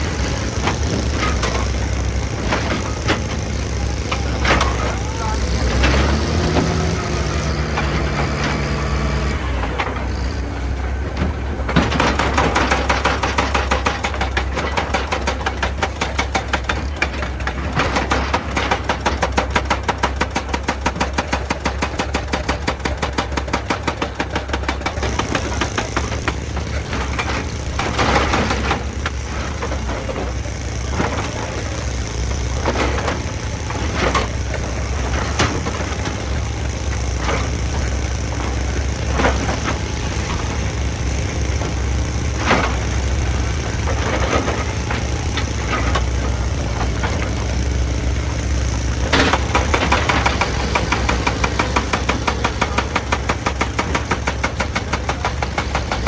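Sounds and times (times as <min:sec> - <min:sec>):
excavator diesel engine running: 0:00.0 - 0:56.0
rocks knocking and clunking: 0:11.0 - 0:56.0
rapid even pounding: 0:11.8 - 0:56.0.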